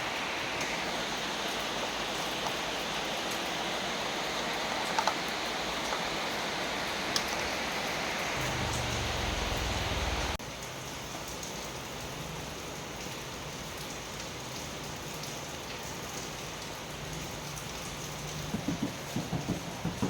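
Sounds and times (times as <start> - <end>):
steady hissing noise: 0.0 - 10.4
faint low hum: 8.4 - 10.4
sharp knocks: 18.5 - 20.0.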